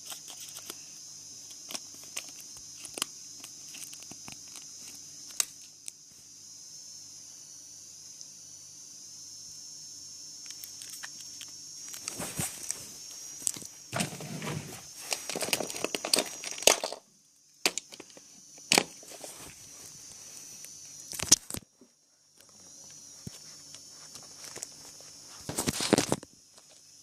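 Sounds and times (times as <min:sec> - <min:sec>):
packaging rustling: 0:14.0 - 0:17.0.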